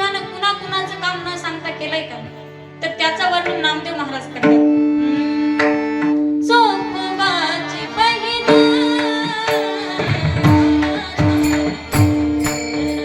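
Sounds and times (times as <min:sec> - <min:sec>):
woman singing devotional melody: 0:00.0 - 0:05.7, 0:06.3 - 0:13.0
harmonium notes: 0:00.0 - 0:13.0
hand drum strokes: 0:09.5 - 0:13.0
small cymbals: 0:09.5 - 0:13.0.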